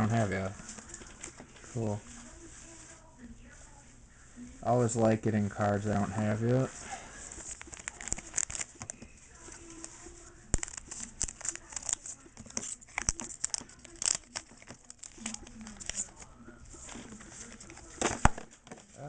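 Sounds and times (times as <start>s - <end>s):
foil wrapper crinkling and tearing: 7.4s - 19.0s.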